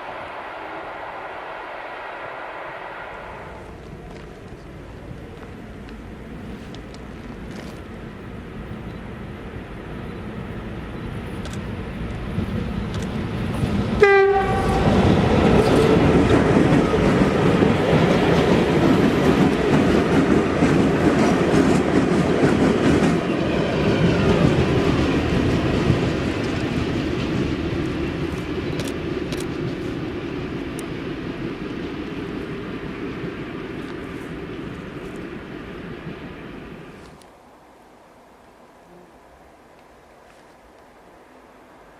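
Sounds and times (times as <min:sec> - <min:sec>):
train wheels rumbling on rails: 0:00.0 - 0:37.3
locomotive horn blast: 0:14.0 - 0:16.2.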